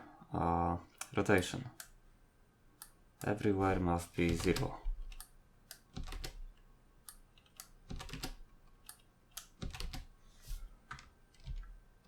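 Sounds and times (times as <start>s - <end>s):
computer keyboard typing: 3.7s - 6.6s, 7.4s - 10.1s, 10.9s - 11.8s.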